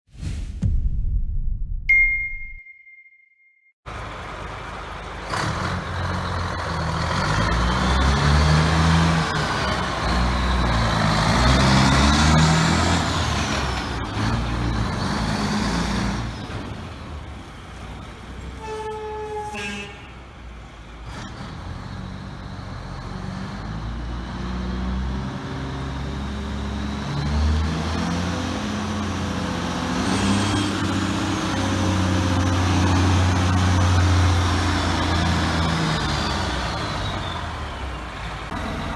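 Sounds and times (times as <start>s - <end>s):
brief pitched tone: 1.9s - 3.7s
truck diesel engine revving: 3.9s - 18.3s, 20.9s - 38.9s.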